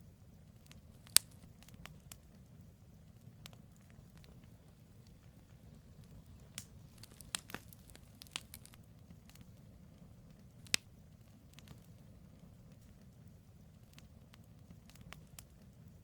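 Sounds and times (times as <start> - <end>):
wood fire rumbling: 0.0 - 16.0
logs crackling and popping: 0.3 - 16.0.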